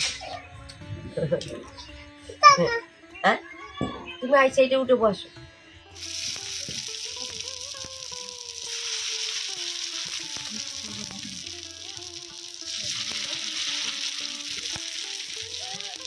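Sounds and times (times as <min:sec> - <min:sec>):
food sizzling in hot oil: 0:06.0 - 0:16.0.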